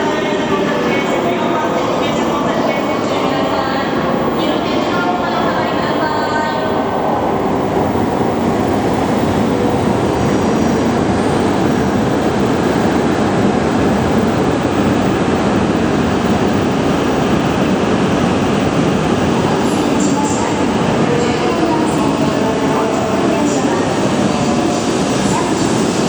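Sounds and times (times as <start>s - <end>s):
high-speed train rushing past: 0.0s - 26.0s.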